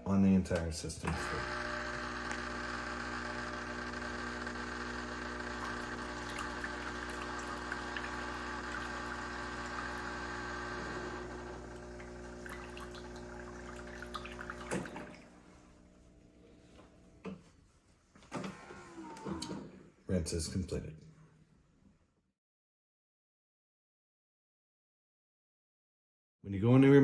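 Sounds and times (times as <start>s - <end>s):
coffee machine pump humming: 0.9s - 17.0s
water rushing: 5.6s - 10.2s.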